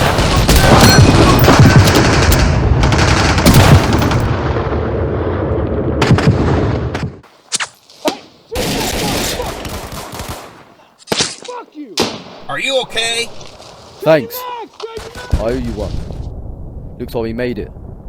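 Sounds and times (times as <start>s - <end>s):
single gunshots: 3.4s - 4.3s, 12.0s - 12.5s.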